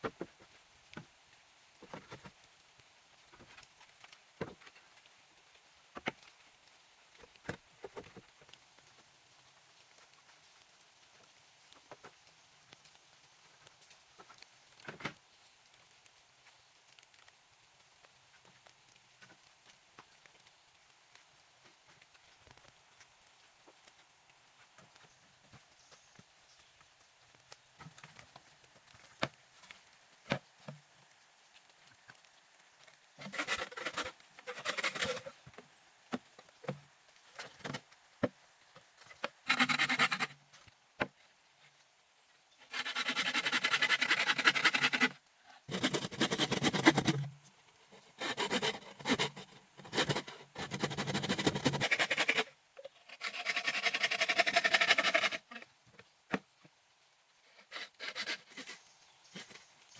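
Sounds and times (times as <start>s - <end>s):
rough scraping strokes: 33.2s - 35.4s, 39.1s - 40.4s, 42.7s - 55.6s, 57.6s - 59.7s.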